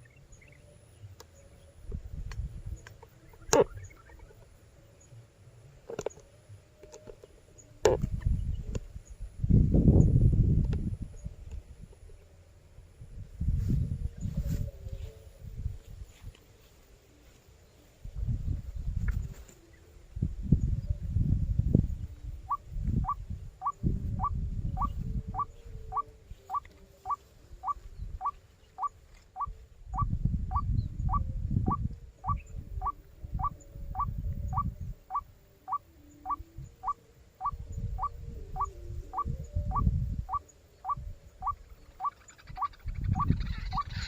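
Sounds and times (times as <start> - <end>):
low rumbling noise in gusts: 7.6 - 16.1, 18.0 - 19.3, 20.0 - 26.2, 29.5 - 35.1, 37.5 - 41.9.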